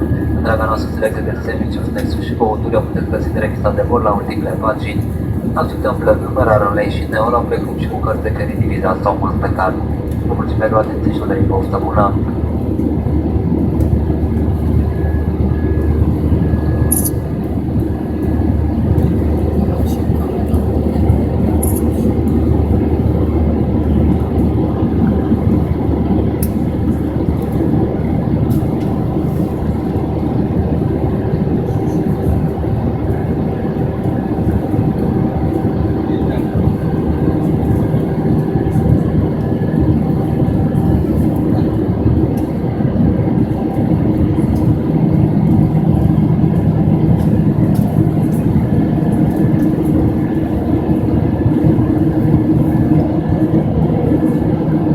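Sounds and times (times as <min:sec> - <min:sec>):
airplane cabin engine rumble: 0:00.0 - 0:54.9
faint hum: 0:00.0 - 0:54.9.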